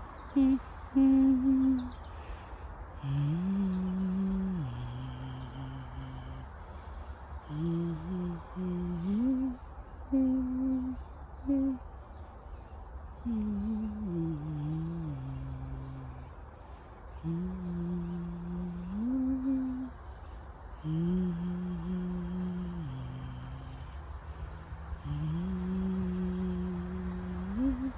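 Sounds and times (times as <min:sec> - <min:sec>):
person humming a slow tune: 0:00.0 - 0:27.9.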